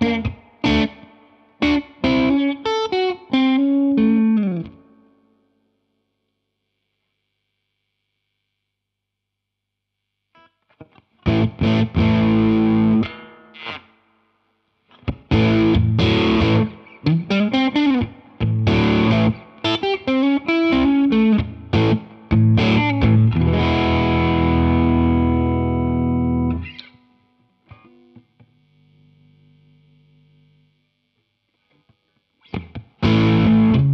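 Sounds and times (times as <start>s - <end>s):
distorted electric guitar: 0.0s - 5.2s, 10.4s - 14.3s, 14.9s - 30.1s, 31.6s - 33.9s.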